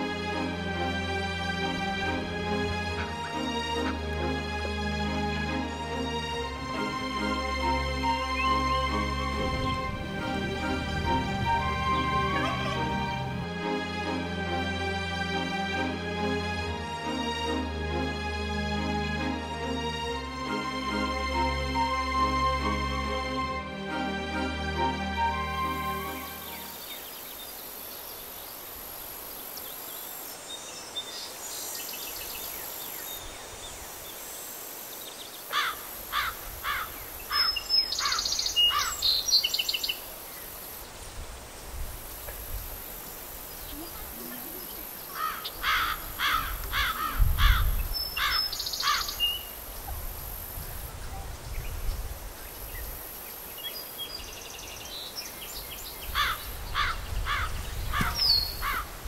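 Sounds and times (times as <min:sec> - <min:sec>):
songbird singing: 0:05.5 - 0:13.5, 0:24.7 - 0:59.0
wind rumble on microphone: 0:09.2 - 0:12.0, 0:41.0 - 0:42.9, 0:46.0 - 0:48.4, 0:49.7 - 0:53.1, 0:55.6 - 0:59.0.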